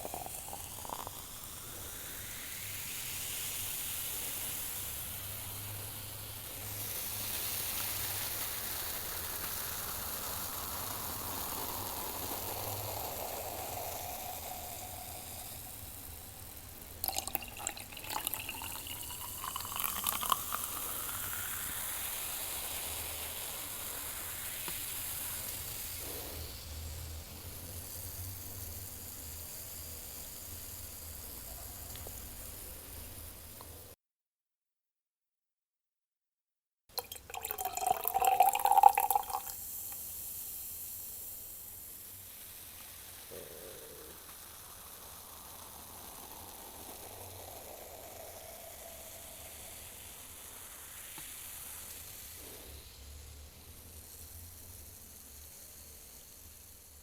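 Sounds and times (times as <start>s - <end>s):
beer pouring into a glass: 0.0s - 2.8s, 3.8s - 26.6s, 36.9s - 40.2s, 42.9s - 51.4s.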